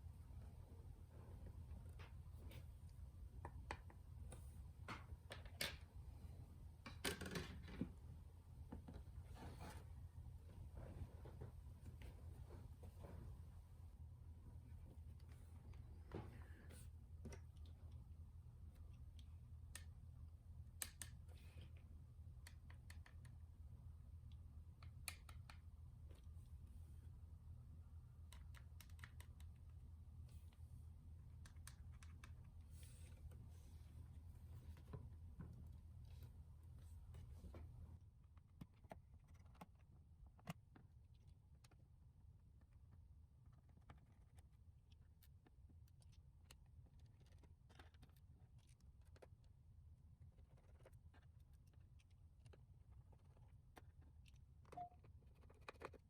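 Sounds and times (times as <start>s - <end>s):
low steady hum: 0.0s - 56.0s
faint clicks and taps: 1.4s - 5.9s, 20.7s - 26.5s, 28.0s - 33.5s.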